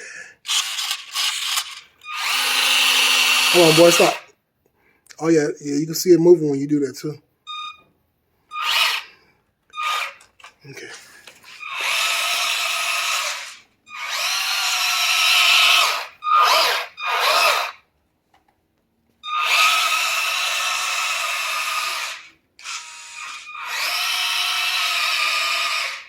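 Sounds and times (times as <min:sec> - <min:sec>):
toy truck electric motor whining: 0:00.4 - 0:04.3, 0:08.5 - 0:10.5, 0:11.2 - 0:17.8, 0:19.2 - 0:26.0.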